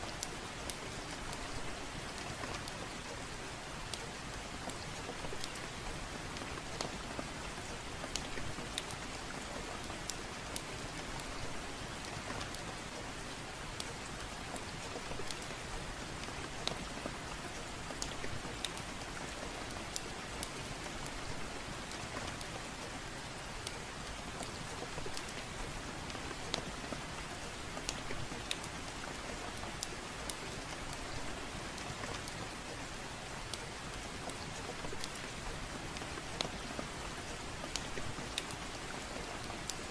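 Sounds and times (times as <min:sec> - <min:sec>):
soft rain: 0:00.0 - 0:39.9
wood fire crackling: 0:00.1 - 0:39.9.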